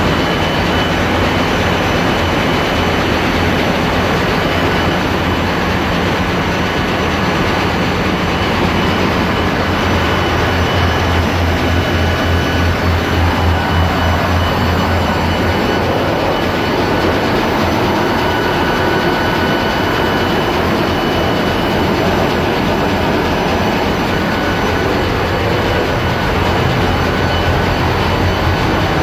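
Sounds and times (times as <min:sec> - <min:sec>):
diesel engines running: 0:00.0 - 0:29.0
pulsing low hum: 0:06.7 - 0:29.0
faint high whine: 0:08.4 - 0:29.0.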